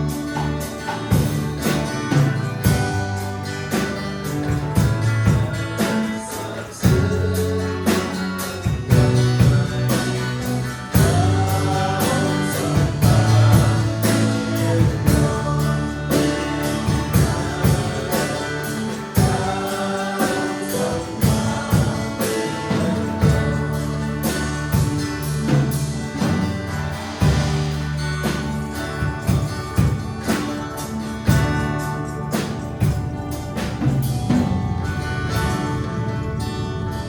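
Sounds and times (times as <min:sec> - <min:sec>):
group of voices singing: 0:00.0 - 0:29.0
worship band playing gospel: 0:00.0 - 0:37.0.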